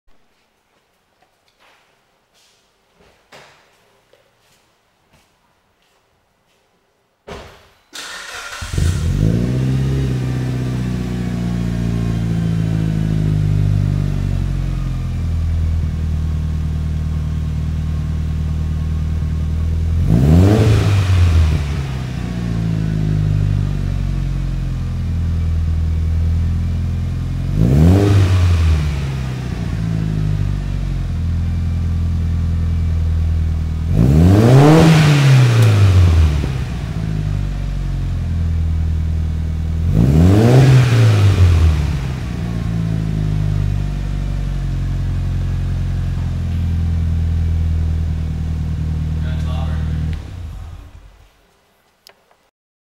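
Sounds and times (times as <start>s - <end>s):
car engine starting: 7.9s - 51.3s
car engine idling: 8.0s - 27.6s, 28.6s - 34.0s, 35.6s - 51.2s
car engine revving: 8.0s - 51.2s.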